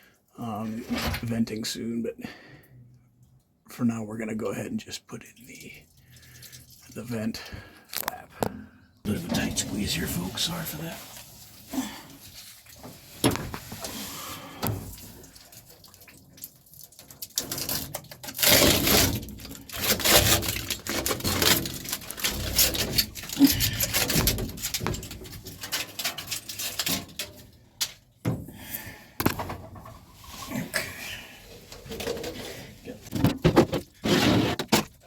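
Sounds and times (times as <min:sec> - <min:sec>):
vent flap knocking and rattling: 0:17.8 - 0:27.2, 0:33.1 - 0:35.0.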